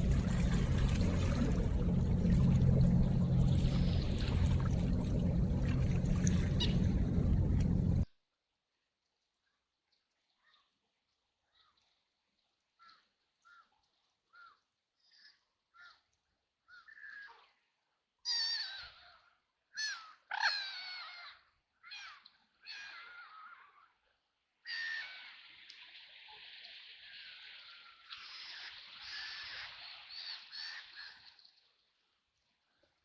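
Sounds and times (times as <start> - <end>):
ducks quacking: 6.4 - 7.8.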